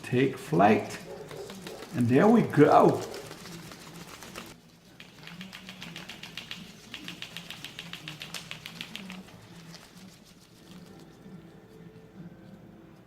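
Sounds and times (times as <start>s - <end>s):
paper wings clicking: 1.0s - 11.1s.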